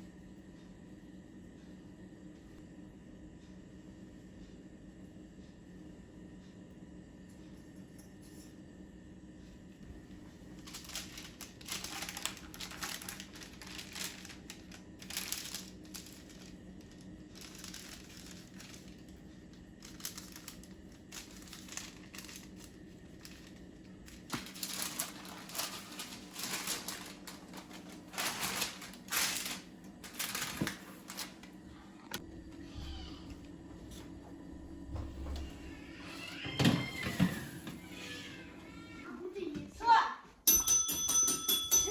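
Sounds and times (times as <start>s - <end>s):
steady low hum: 0.0s - 36.0s
material crinkling and rustling: 10.3s - 16.5s, 19.8s - 31.5s.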